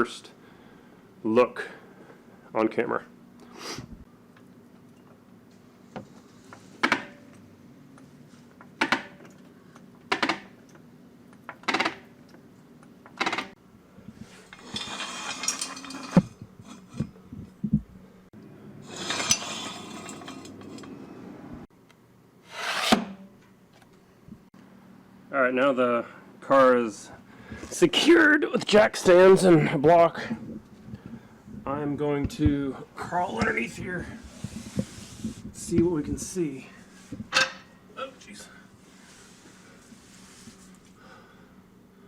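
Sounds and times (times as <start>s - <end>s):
metal scraping: 14.2s - 17.2s, 18.8s - 21.1s, 22.5s - 23.2s
metal clanks: 14.4s - 17.2s, 18.8s - 21.0s, 37.3s - 37.8s.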